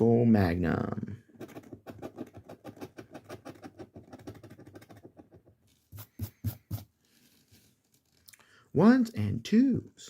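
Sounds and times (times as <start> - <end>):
scratching lottery ticket: 1.3 - 8.2.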